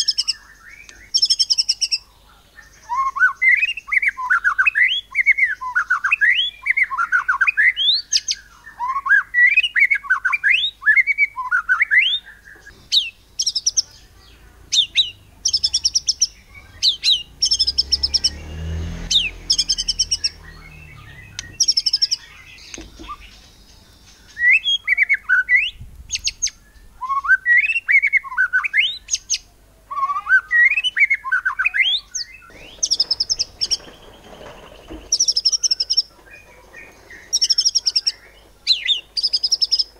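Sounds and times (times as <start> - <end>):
bird singing whistled phrases: 2.8 - 13.8, 24.3 - 33.4
fast high clipped bird notes: 14.7 - 26.5, 30.1 - 39.9.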